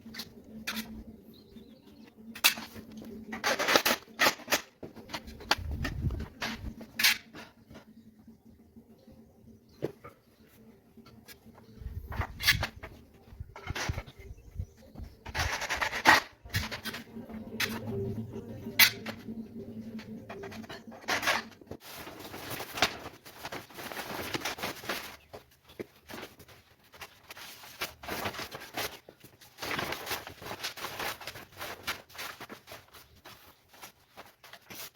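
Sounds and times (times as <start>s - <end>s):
steady low hum: 5.1s - 24.2s.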